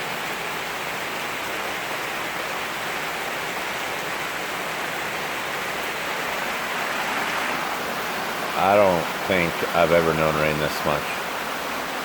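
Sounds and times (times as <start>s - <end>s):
heavy rain falling: 3.8s - 12.0s.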